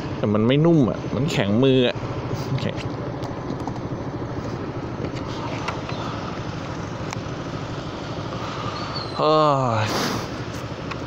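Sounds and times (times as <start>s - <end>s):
scooter engine idling: 0.0s - 11.0s.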